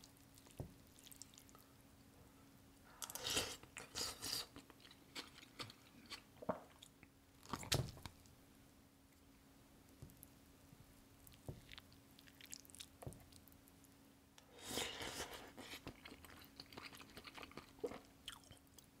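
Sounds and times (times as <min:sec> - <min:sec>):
person chewing food: 0:00.1 - 0:01.6, 0:03.0 - 0:08.3, 0:11.2 - 0:13.8, 0:14.6 - 0:18.9.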